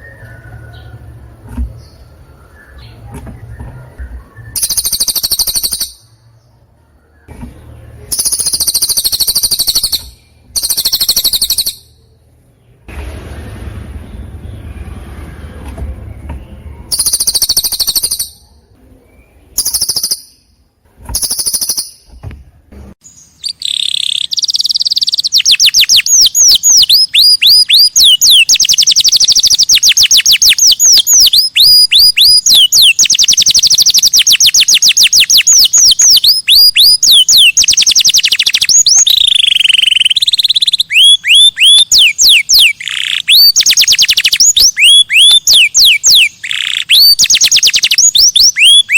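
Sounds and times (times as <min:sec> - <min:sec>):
bird whistled chirps: 0:02.3 - 0:06.2, 0:08.1 - 0:12.0, 0:16.9 - 0:18.4, 0:19.6 - 0:20.5, 0:21.2 - 0:22.1, 0:23.2 - 0:48.9
bird harsh calls: 0:23.2 - 0:48.9.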